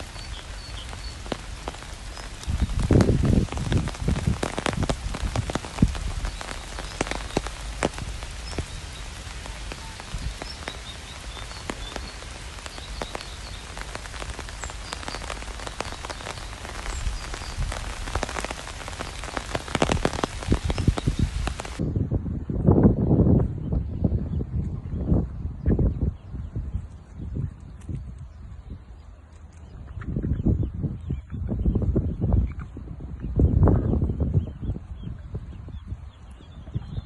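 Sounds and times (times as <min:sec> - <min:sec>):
rain drops pattering: 0:00.0 - 0:21.8
steady hiss: 0:00.0 - 0:21.8.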